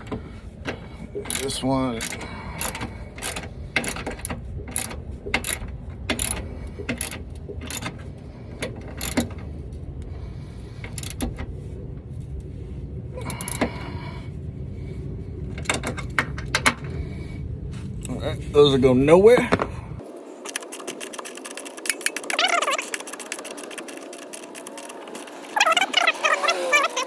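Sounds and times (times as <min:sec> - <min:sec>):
socket ratchet clicking: 0:01.3 - 0:08.0, 0:09.0 - 0:09.3, 0:10.9 - 0:11.3.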